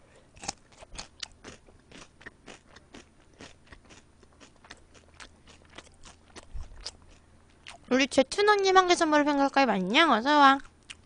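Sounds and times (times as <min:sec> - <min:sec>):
crunchy chewing of fried chicken: 0:00.1 - 0:07.9, 0:10.6 - 0:11.0.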